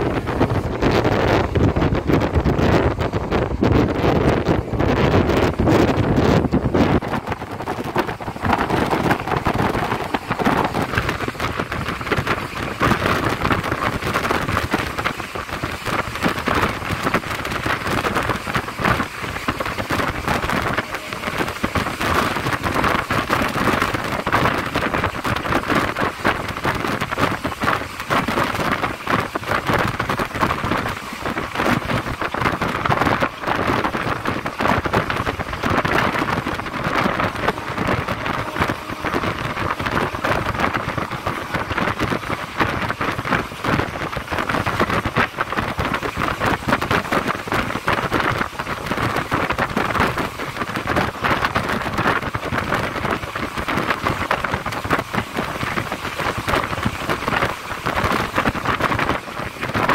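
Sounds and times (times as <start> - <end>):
rushing wind: 0.0 - 59.9
train wheels rattling on rails: 0.0 - 59.9.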